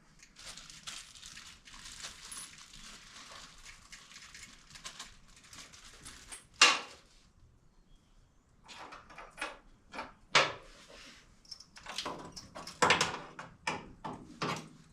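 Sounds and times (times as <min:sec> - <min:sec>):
nuts and bolts clinking: 0:11.4 - 0:13.9.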